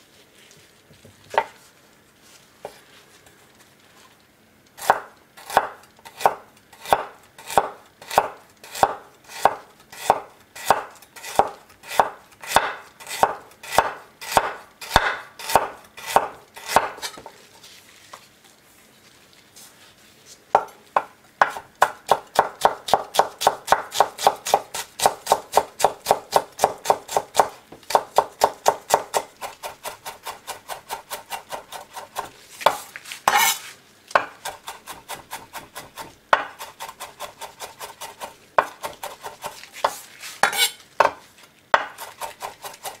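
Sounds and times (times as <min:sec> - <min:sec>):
knife cutting on wooden board: 0:28.4 - 0:40.8.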